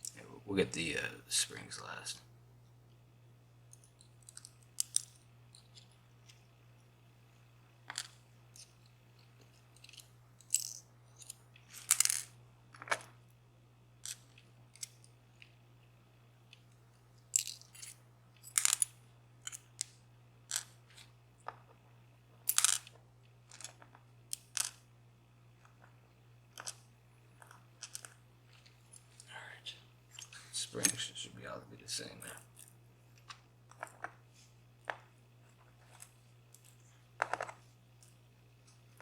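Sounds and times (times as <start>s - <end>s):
low steady hum: 0.0s - 39.0s
metal pins clicking and clinking: 3.7s - 6.5s, 7.8s - 13.2s, 14.0s - 15.6s, 16.5s - 21.8s, 22.4s - 24.8s, 25.6s - 29.3s, 32.2s - 34.2s
metal parts rattling: 9.4s - 13.1s, 17.3s - 19.8s, 26.6s - 26.8s.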